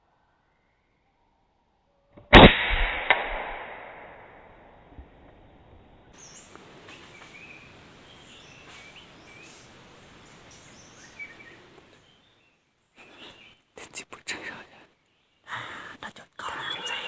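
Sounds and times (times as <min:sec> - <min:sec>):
outdoor background hiss: 0:00.0 - 0:17.0
birds chirping: 0:04.8 - 0:17.0.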